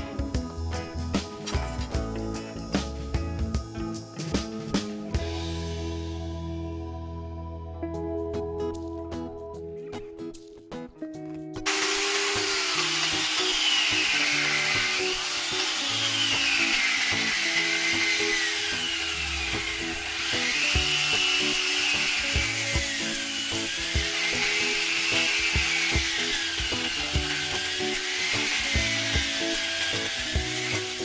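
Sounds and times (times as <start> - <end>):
music with steady beat: 0.0 - 6.7, 19.2 - 31.0
saw rasping through wood: 11.7 - 31.0.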